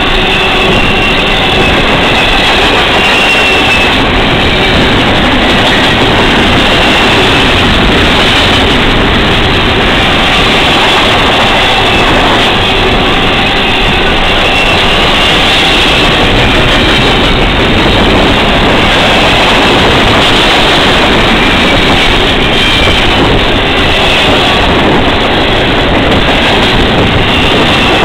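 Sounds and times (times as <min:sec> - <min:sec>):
faint high wheel squeals: 0:00.0 - 0:05.0, 0:09.9 - 0:17.6
train wheels rumbling on rail: 0:00.0 - 0:28.0.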